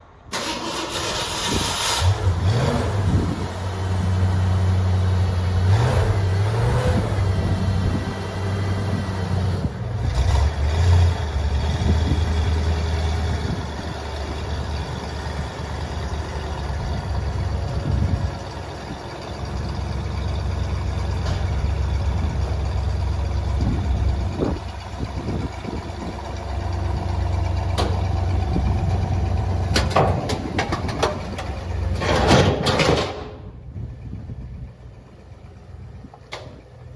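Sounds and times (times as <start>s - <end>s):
car engine idling: 12.7s - 36.9s.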